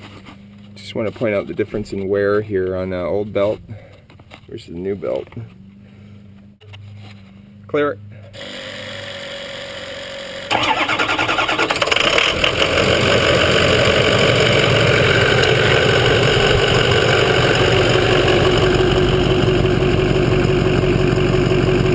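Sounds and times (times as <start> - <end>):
diesel engine starting and idling: 8.4 - 21.9.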